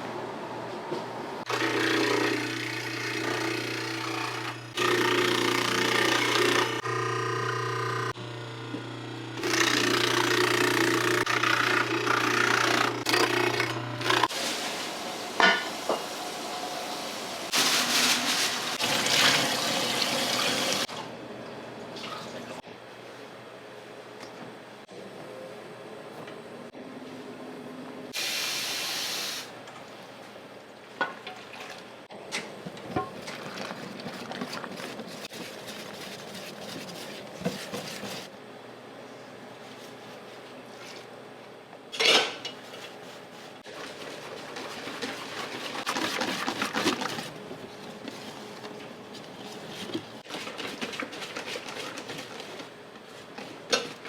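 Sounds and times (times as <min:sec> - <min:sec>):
kitchen hiss: 0:28.2 - 0:29.6.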